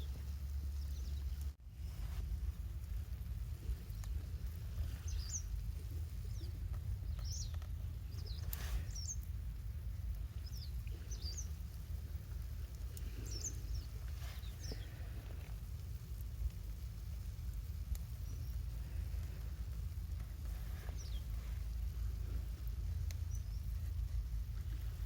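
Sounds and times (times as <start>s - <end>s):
steady low rumble: 0.0s - 25.0s
bird chirping: 4.8s - 5.6s, 6.2s - 9.3s, 10.2s - 11.6s, 13.1s - 14.9s, 20.8s - 21.6s, 23.1s - 23.9s.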